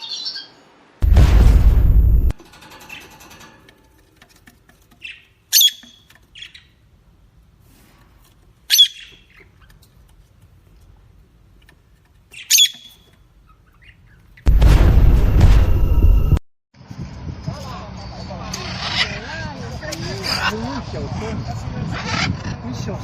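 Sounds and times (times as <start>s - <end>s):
peacock squawking: 5.0s - 6.0s, 8.7s - 9.4s, 12.4s - 14.1s.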